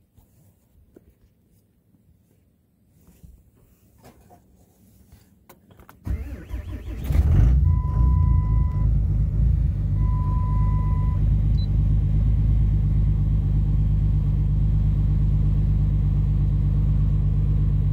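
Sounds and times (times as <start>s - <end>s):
diesel engine idling: 6.1s - 17.9s
long electronic beeps: 10.0s - 11.7s.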